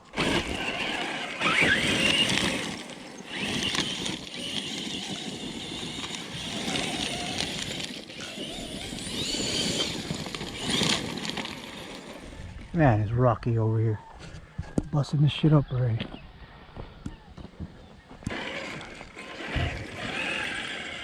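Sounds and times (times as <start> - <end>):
electric motor whining: 0.0 - 12.7, 18.1 - 21.0
tyres rattling over rocky ground: 0.1 - 13.0, 18.1 - 21.0.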